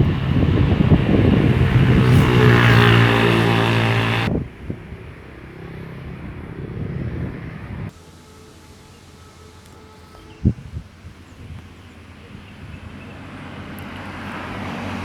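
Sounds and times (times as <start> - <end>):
diesel locomotive engine drone: 0.0 - 15.0.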